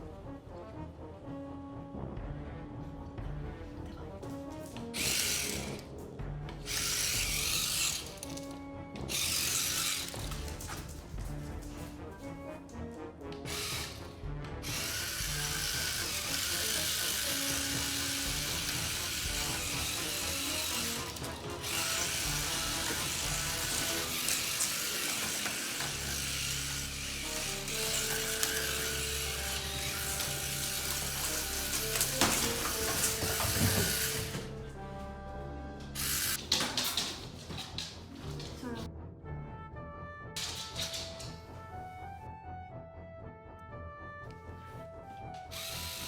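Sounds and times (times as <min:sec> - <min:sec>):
background music: 0:00.0 - 0:46.0
small geared motor whirring: 0:05.0 - 0:05.8, 0:06.7 - 0:08.4, 0:09.1 - 0:10.4, 0:13.5 - 0:14.0, 0:14.6 - 0:34.5, 0:45.6 - 0:46.0.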